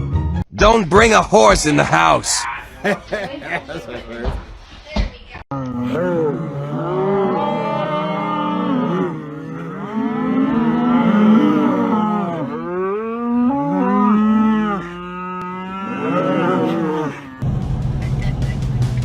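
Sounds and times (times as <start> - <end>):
cattle mooing: 5.5 - 17.4.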